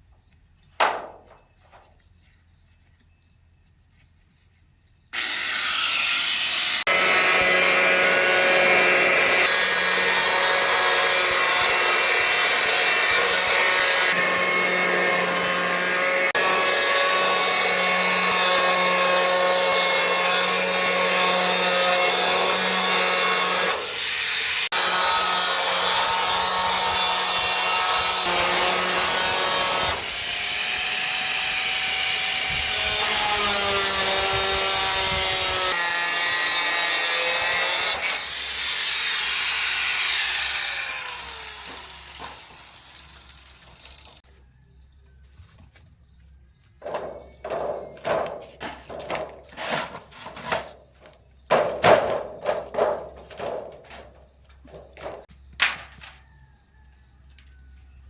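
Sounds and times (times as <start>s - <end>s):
electric power tool motor: 5.2s - 44.2s.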